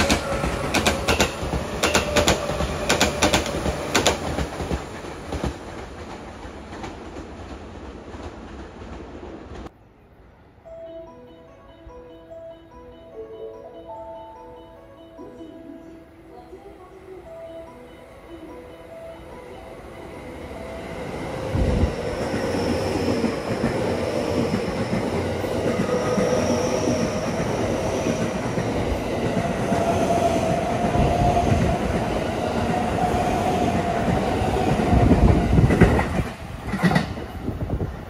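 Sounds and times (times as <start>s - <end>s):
train wheels rumbling: 0.0s - 9.7s, 20.1s - 38.0s
wheels clacking over rail joints: 0.0s - 9.7s
electric train hum: 0.0s - 38.0s.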